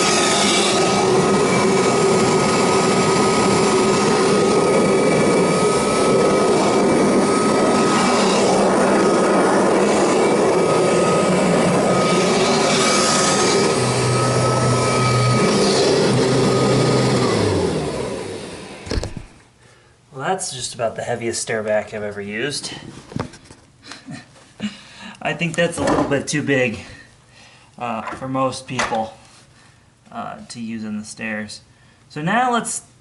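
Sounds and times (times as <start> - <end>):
vacuum cleaner motor whine: 0.0 - 19.4.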